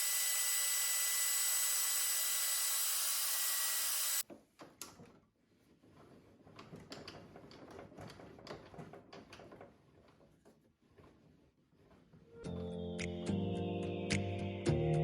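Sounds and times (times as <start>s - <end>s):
power tool running with whine: 0.0s - 4.2s
knocks and clicks of wood and tools: 4.2s - 5.3s, 6.4s - 10.6s.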